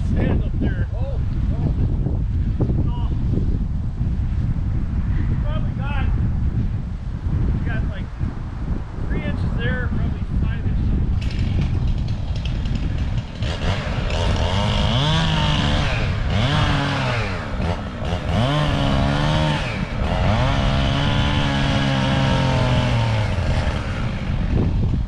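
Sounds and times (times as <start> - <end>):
chainsaw revving: 11.2 - 24.9.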